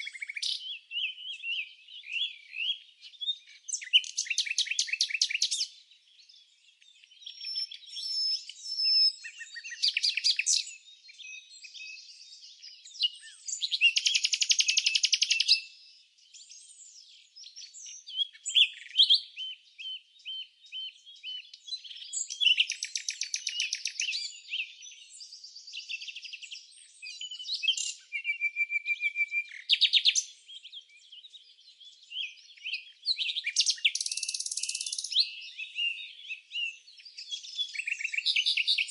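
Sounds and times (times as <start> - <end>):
songbirds trilling and chirping: 0.0 - 38.9.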